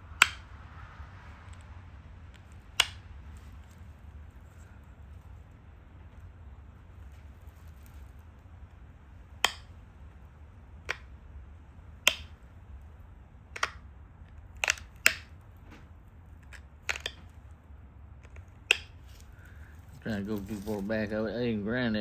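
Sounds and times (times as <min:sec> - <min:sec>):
stone flakes snapping off: 0:13.6 - 0:13.8, 0:16.4 - 0:17.3, 0:18.2 - 0:21.0.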